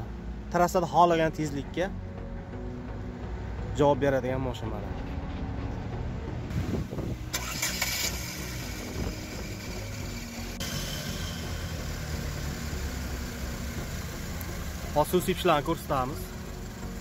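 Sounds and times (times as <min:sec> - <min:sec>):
car engine idling: 0:06.2 - 0:17.0.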